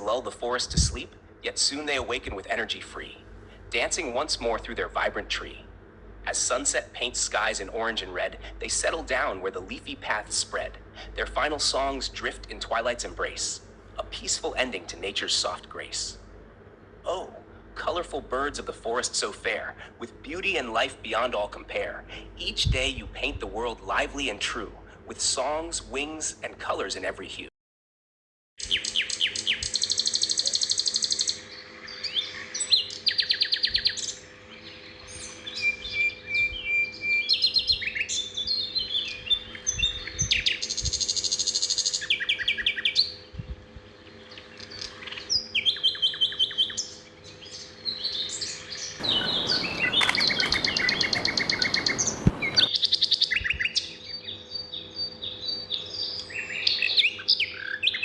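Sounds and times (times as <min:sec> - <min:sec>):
faint steady hum: 0:00.0 - 0:25.1, 0:49.0 - 0:52.7
songbirds singing: 0:28.6 - 0:40.7, 0:44.2 - 0:52.7
harsh buzzy bird call: 0:49.0 - 0:52.7.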